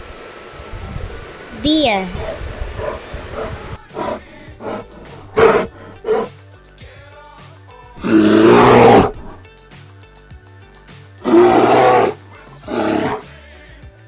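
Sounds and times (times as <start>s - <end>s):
quiet background music: 1.5s - 13.7s
bear roaring: 2.0s - 6.3s, 8.0s - 9.4s, 11.2s - 13.2s.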